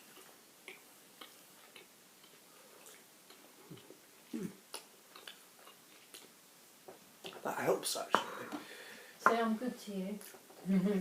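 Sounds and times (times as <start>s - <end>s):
crisps being chewed: 0.0s - 4.0s, 4.7s - 6.4s.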